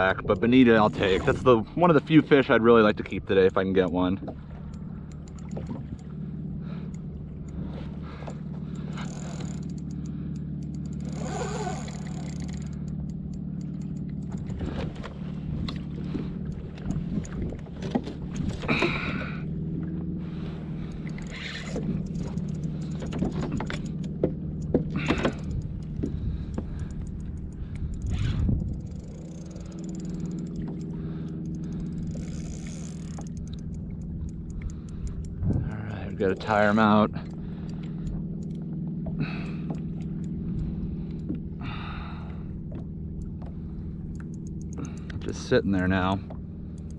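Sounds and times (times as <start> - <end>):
gear clicking and knocking: 0.0 - 2.2, 2.8 - 7.6, 8.2 - 19.2, 20.8 - 41.5, 42.6 - 46.9
steady low hum: 0.0 - 46.9.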